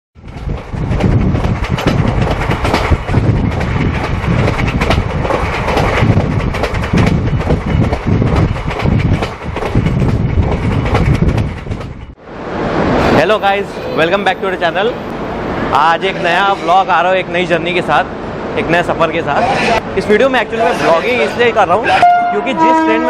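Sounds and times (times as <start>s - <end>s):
wheels clattering over rail joints: 0.2s - 12.2s
rushing air: 0.2s - 20.2s
train rumble: 0.2s - 23.0s.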